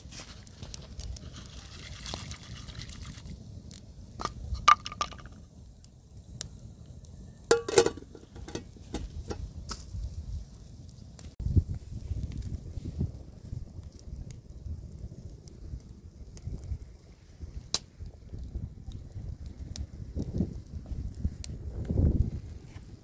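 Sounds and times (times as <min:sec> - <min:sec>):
utensils knocking on dishes: 0:07.5 - 0:09.4.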